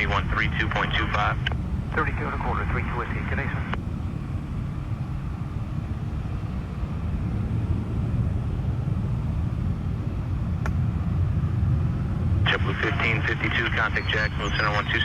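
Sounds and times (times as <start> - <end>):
distant jet engines rumbling: 0.0 - 15.0.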